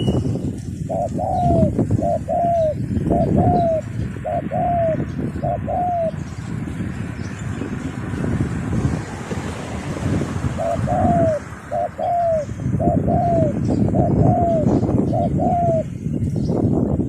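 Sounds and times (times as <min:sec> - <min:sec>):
wind rumble on microphone: 0:00.0 - 0:17.0
dove cooing: 0:00.8 - 0:06.3, 0:10.5 - 0:15.9.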